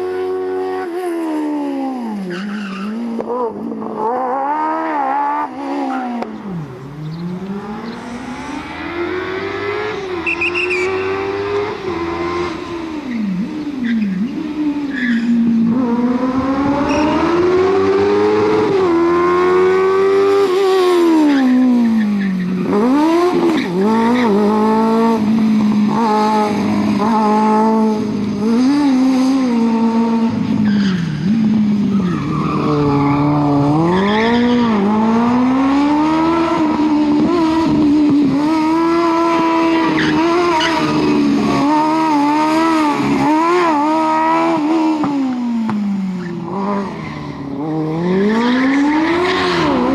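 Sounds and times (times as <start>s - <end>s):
car engine revving hard: 3.2s - 12.8s, 15.7s - 21.3s, 31.2s - 45.7s.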